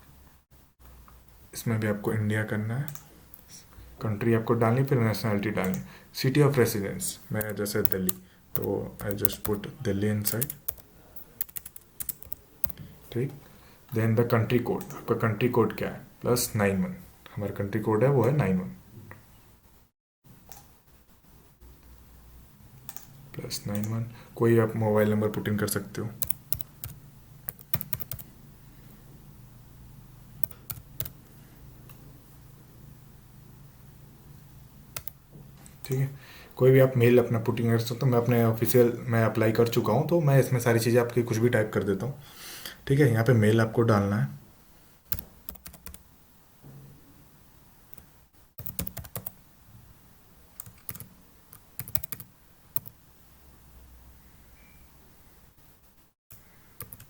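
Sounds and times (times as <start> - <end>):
faint steady hum: 0.0 - 57.0
keyboard typing: 5.4 - 5.9, 7.4 - 9.6, 10.2 - 12.9, 14.7 - 15.2, 22.8 - 24.0, 26.2 - 28.3, 30.4 - 31.3, 34.9 - 35.2, 45.1 - 46.0, 47.9 - 49.4, 50.6 - 53.0, 56.3 - 57.0.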